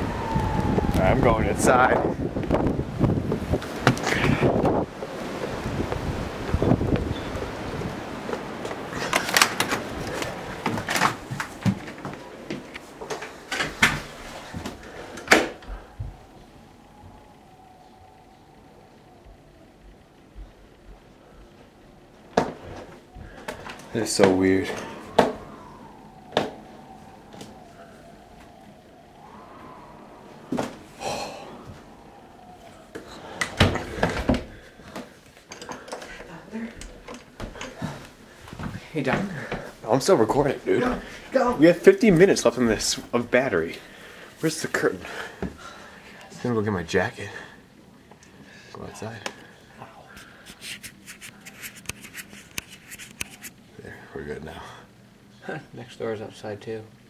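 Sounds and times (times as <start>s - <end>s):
wind noise on microphone: 0.0s - 12.9s, 13.6s - 21.0s, 22.6s - 34.8s.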